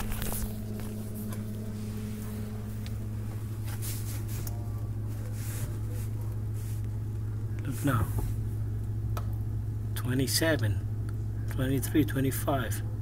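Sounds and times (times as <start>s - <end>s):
handling rustles and clicks: 0.0s - 3.0s
refrigerator humming: 0.0s - 13.0s.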